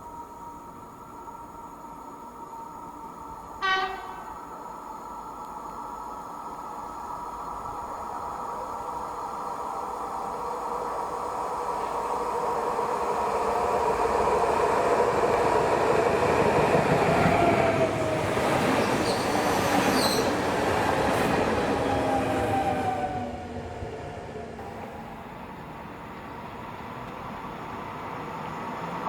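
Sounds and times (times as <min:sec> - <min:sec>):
train passing by: 0:00.0 - 0:29.0
high wheel squeal: 0:18.7 - 0:20.5.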